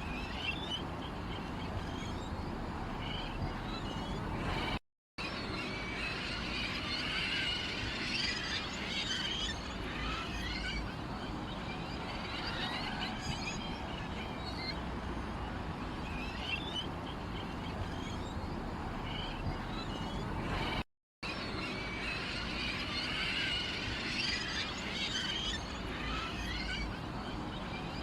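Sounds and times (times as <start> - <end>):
small birds chirping: 0.0 - 4.8, 8.1 - 20.8.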